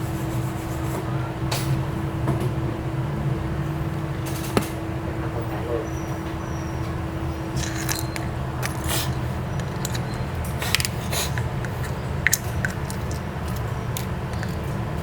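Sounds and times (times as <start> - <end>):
steady low hum: 1.8 - 15.0
hand tools clicking and scraping: 7.5 - 14.8.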